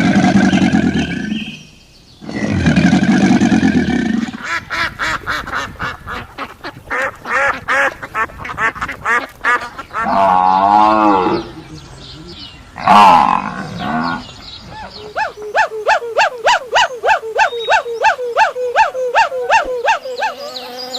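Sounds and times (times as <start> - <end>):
rough low animal call: 0.0 - 5.3, 10.0 - 20.9
long drawn-out animal call: 10.0 - 20.9
poultry calling sharply: 14.7 - 20.9.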